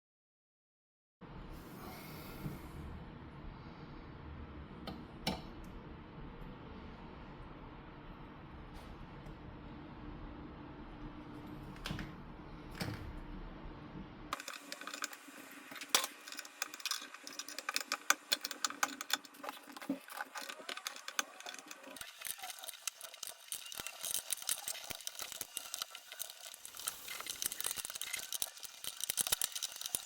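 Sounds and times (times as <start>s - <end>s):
low mechanical hum: 1.2s - 30.0s
mechanical clicking and rattling: 14.3s - 30.0s.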